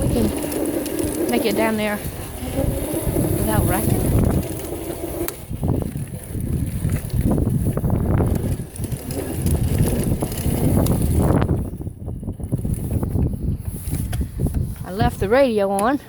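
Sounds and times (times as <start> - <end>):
electric scooter rumbling: 0.0 - 15.9.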